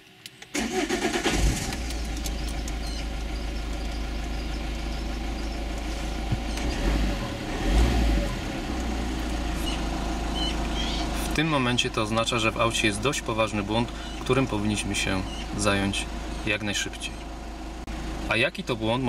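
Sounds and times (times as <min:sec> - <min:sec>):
car starter cranking: 0:00.4 - 0:07.2
car engine idling: 0:00.4 - 0:19.0.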